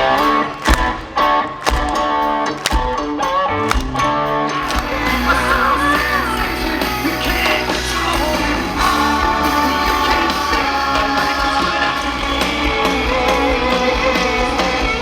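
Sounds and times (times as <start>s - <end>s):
electric guitar: 0.0s - 15.0s
live rock band: 0.0s - 15.0s
person singing: 4.6s - 15.0s.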